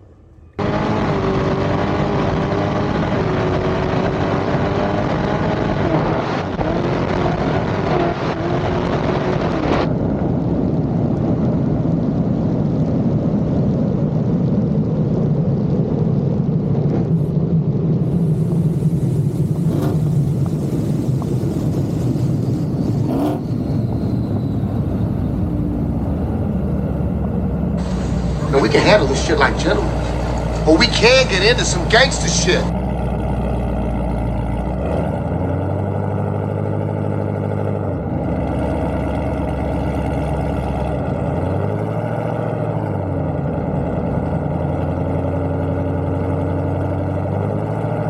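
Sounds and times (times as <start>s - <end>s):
drag racing engines rumbling: 0.0s - 10.1s, 18.0s - 42.7s.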